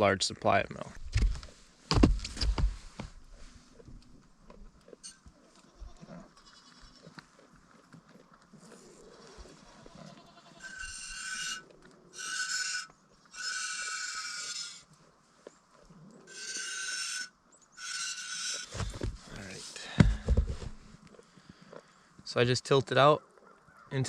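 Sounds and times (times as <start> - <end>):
goat kids bleating: 5.4 - 7.2, 9.6 - 11.6, 12.2 - 14.9.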